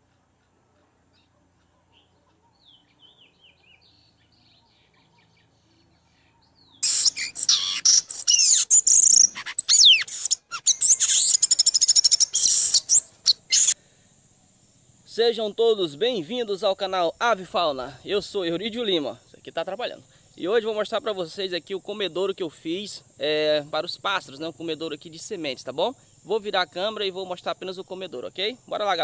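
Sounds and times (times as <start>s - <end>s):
bird chirping and trilling: 6.7s - 13.8s.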